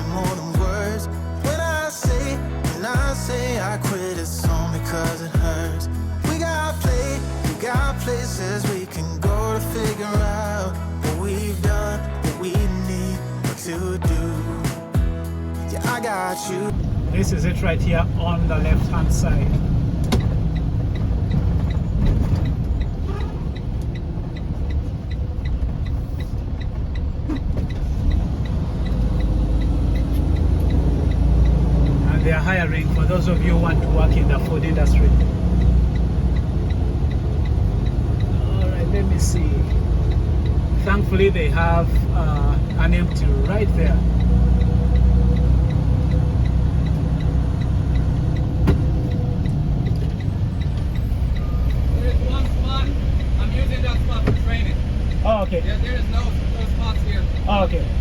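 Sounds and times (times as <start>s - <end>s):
diesel truck engine rumble: 0.0s - 58.0s
turn signal ticking: 0.0s - 58.0s.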